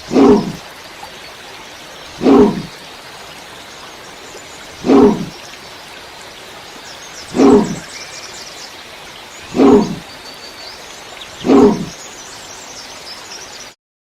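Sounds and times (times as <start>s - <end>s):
short animal calls: 0.0s - 0.6s, 2.2s - 2.7s, 4.8s - 5.4s, 7.3s - 7.8s, 9.5s - 10.0s, 11.4s - 12.0s.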